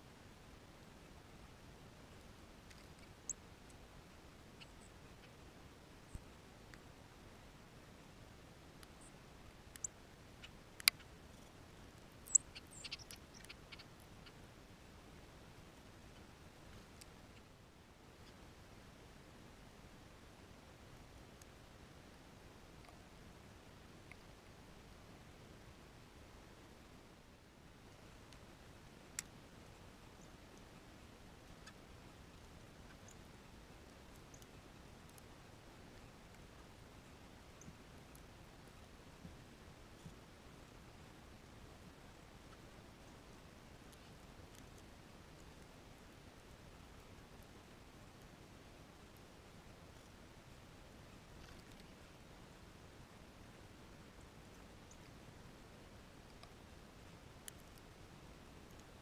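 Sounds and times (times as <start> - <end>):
faint hiss: 0.0 - 59.0
small birds chipping: 0.8 - 14.4, 28.0 - 40.3.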